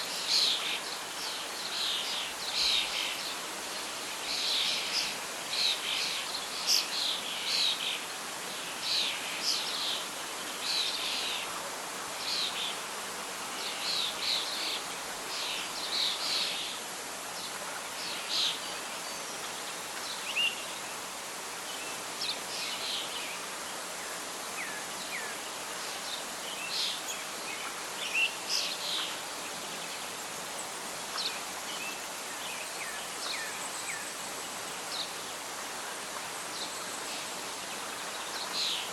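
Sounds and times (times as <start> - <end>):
birds singing and calling: 21.8 - 35.5.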